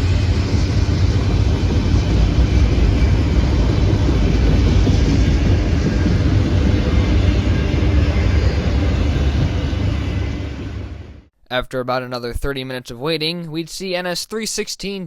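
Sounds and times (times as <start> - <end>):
freight train rumbling past: 0.0 - 11.3.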